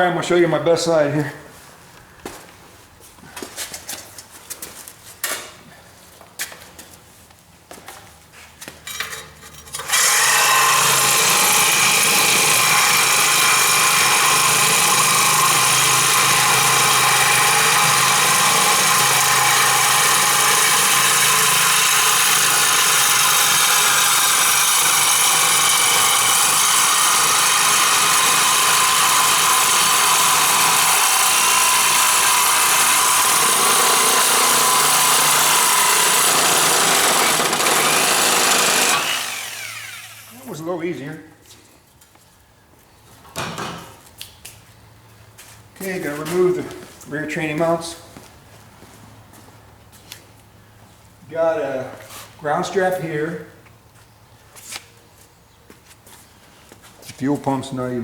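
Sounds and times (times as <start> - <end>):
hand tools clinking: 8.8 - 9.9
loud steady machine noise: 9.8 - 40.5.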